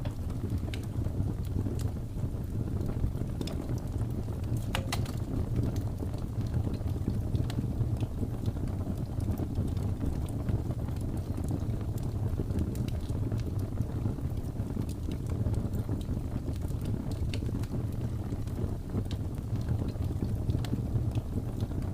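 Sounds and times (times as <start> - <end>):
low rumble of wind: 0.0 - 21.9
wood fire crackling: 0.0 - 21.9.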